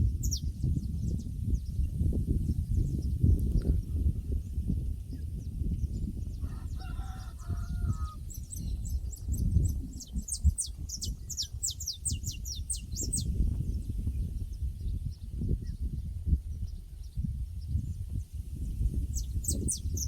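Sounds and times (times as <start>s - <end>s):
rooster crowing: 6.4s - 8.2s
small bird chirping: 6.8s - 15.9s, 18.7s - 20.0s.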